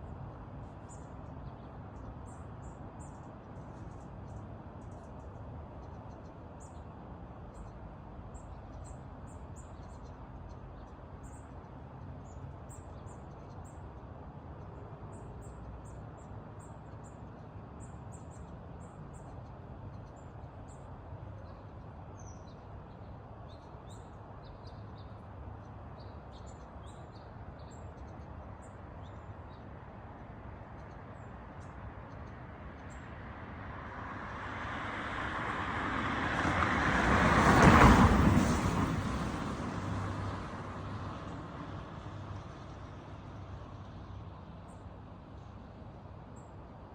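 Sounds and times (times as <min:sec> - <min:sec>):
songbirds chirping: 0:00.1 - 0:34.2.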